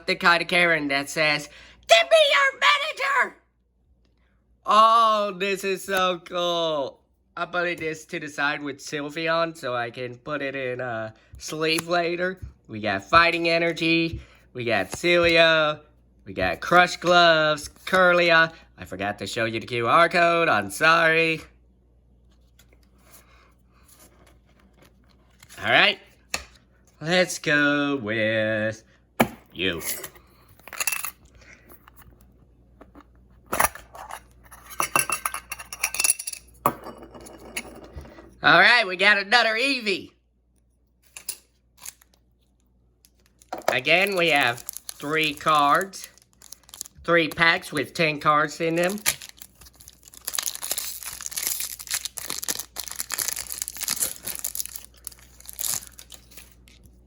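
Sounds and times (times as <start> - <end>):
packaging crinkling and rustling: 41.8 - 47.9, 48.7 - 57.0.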